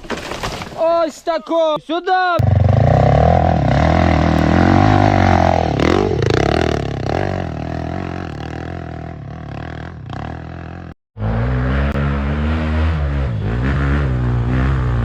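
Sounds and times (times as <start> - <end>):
dirt bike engine revving: 2.4 - 15.0.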